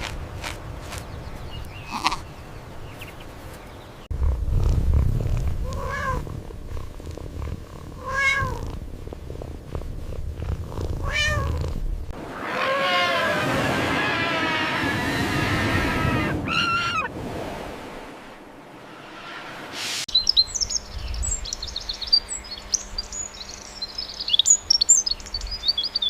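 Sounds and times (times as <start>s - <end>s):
animal calling: 1.8s - 2.3s, 12.3s - 17.1s
low steady rumble: 4.1s - 12.4s.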